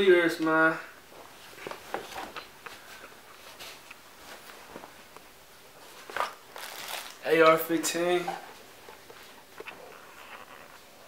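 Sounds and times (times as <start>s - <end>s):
rustling of handled object: 5.7s - 10.9s.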